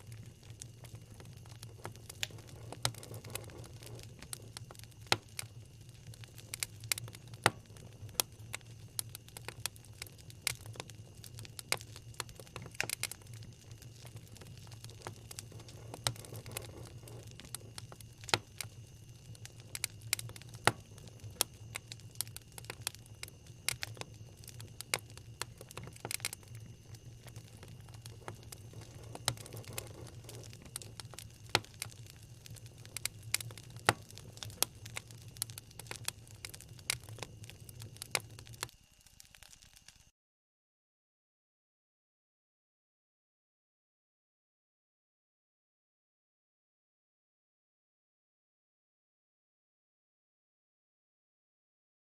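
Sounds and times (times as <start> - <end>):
wood fire crackling: 0.0 - 40.1.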